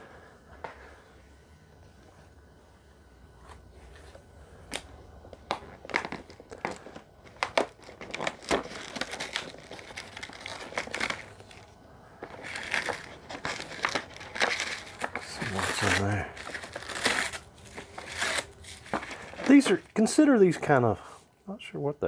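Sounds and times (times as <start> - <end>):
cardboard packaging crinkling and tearing: 4.7 - 20.8.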